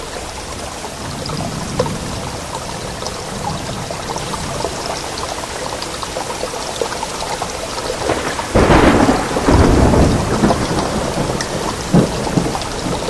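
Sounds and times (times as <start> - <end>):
heavy rain falling: 0.0 - 13.0
thunder crack and rumble: 7.9 - 13.0.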